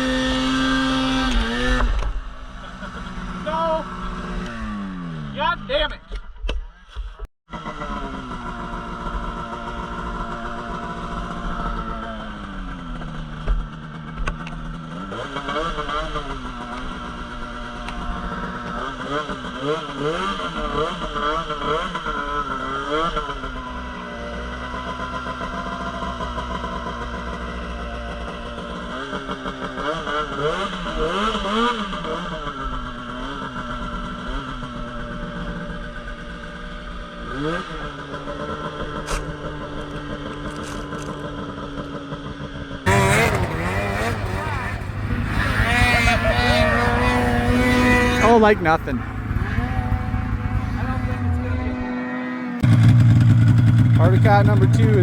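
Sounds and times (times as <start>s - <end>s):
snowmobile engine revving: 0.0s - 5.8s, 14.7s - 40.1s, 42.8s - 55.0s.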